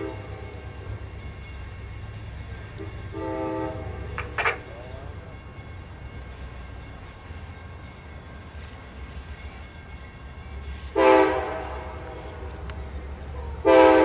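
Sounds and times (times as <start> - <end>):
train horn chord blast: 0.0 - 1.2, 2.7 - 4.7, 10.6 - 14.0
low rumble of train rolling: 0.0 - 14.0.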